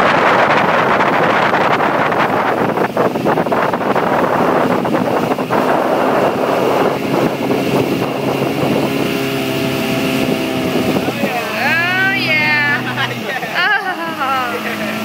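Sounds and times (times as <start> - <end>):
motorboat engine running: 0.0 - 15.0
wind buffeting microphone: 0.0 - 15.0.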